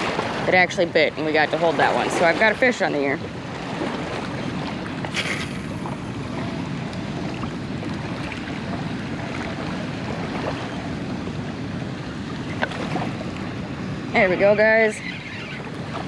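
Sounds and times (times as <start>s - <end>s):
water rushing from spillway: 4.5s - 8.5s.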